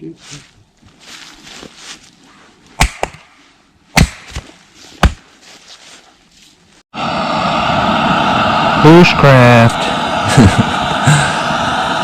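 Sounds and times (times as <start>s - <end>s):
axe chopping wood: 2.8s - 3.3s, 3.9s - 5.3s.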